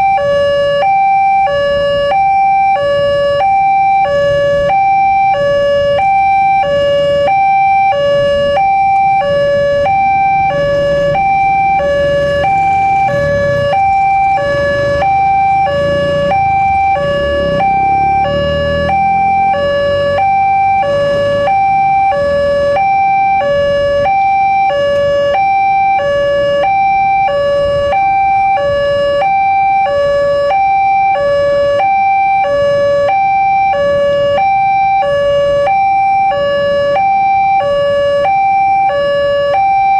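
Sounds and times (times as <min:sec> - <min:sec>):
two-tone crossing alarm: 0:00.0 - 0:39.9
low rumble: 0:09.2 - 0:20.1.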